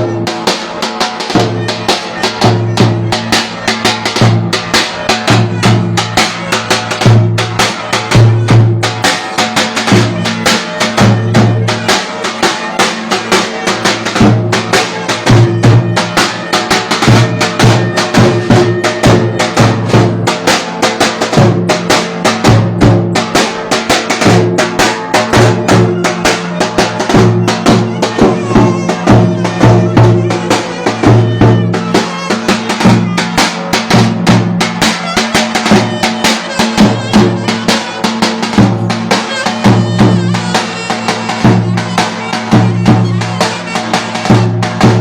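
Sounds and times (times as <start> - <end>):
fast drum beat: 0.0 - 45.0.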